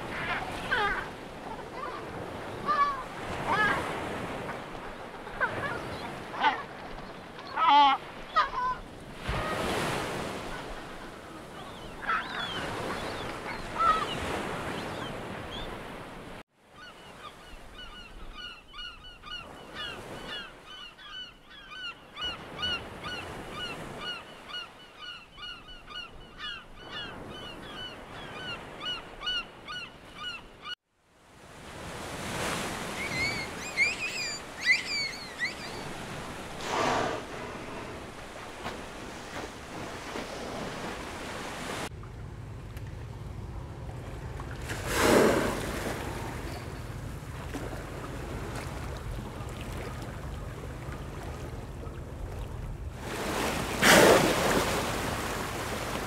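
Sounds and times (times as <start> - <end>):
wild bird calls: 1.8 - 15.8, 32.8 - 39.2.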